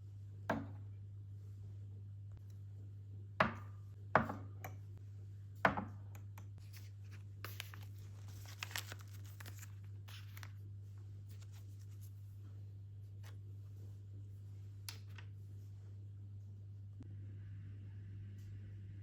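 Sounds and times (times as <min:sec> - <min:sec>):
steady low hum: 0:00.0 - 0:19.0
soft rustling and crinkling: 0:06.6 - 0:14.1.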